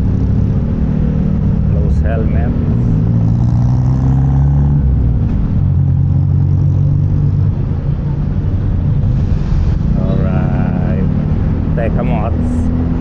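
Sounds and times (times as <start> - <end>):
motorcycle engine hum: 0.0 - 9.1
road noise: 0.0 - 13.0.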